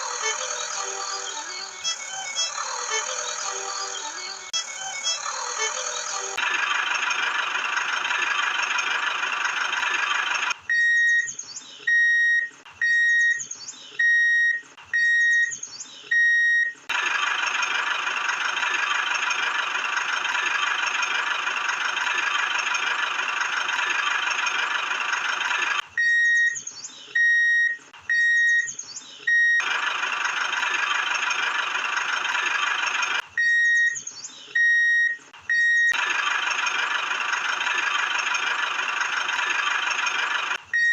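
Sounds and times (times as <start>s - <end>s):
short electronic beeps: 34.6s - 36.3s.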